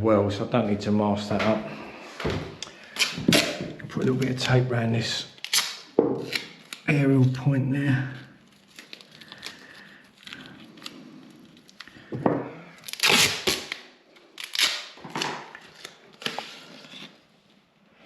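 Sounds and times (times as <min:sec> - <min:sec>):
masking tape ripping: 0:02.8 - 0:04.5, 0:05.4 - 0:07.0, 0:12.8 - 0:17.2.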